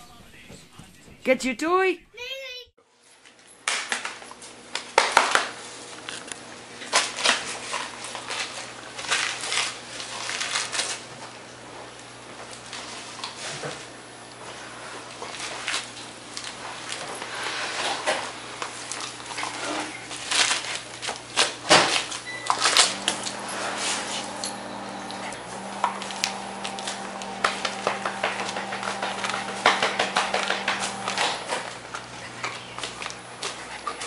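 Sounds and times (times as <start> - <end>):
dog tearing gift wrapping paper: 3.6 - 11.2, 15.0 - 29.6
steady low hum: 22.2 - 34.0.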